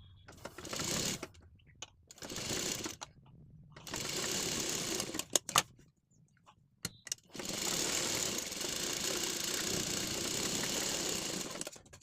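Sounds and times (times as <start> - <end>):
sewing machine clicks: 0.3 - 1.4, 3.8 - 5.7, 6.9 - 12.0
sewing machine stitching: 0.3 - 1.4, 2.1 - 3.1, 3.8 - 5.4, 7.3 - 12.0.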